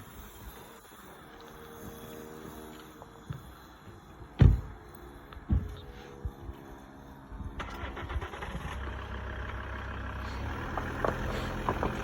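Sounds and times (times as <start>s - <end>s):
motor vehicle running: 0.0s - 12.0s.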